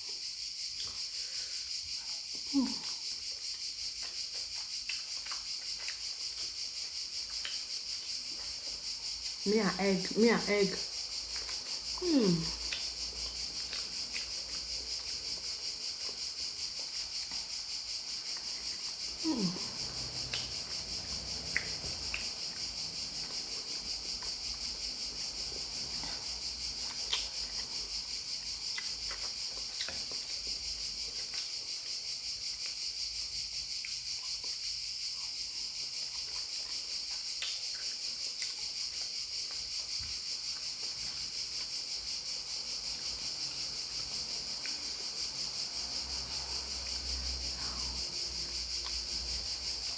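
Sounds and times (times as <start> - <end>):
crickets chirping: 0.0 - 49.9
person humming: 2.5 - 2.9, 12.0 - 12.6, 19.2 - 19.7.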